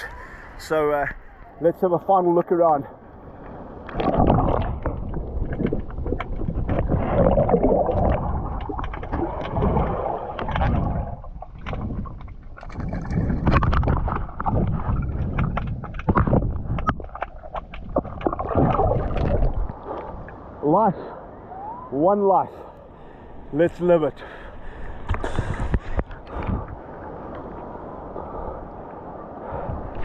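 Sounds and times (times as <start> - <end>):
water rushing and gurgling underwater: 2.9 - 20.6, 24.6 - 30.0
small underwater clicks and knocks: 3.4 - 20.4, 25.0 - 27.5.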